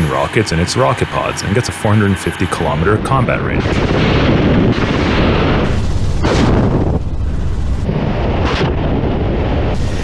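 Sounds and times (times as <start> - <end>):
helicopter weapons firing: 0.0 - 7.0
sharp explosion blasts: 2.6 - 10.0.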